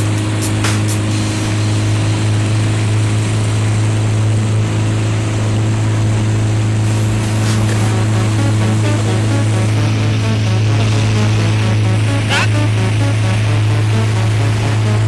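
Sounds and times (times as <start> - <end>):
rush of wind and water: 0.0 - 8.8
motorboat engine droning: 0.0 - 15.0.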